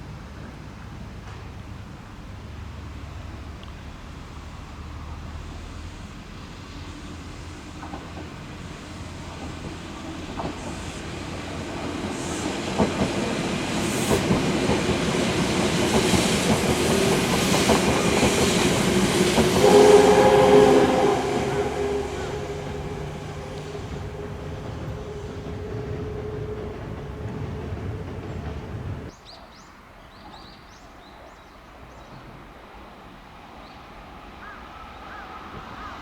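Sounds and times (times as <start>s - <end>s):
train passing: 0.1s - 29.2s
steady tones: 15.0s - 29.1s.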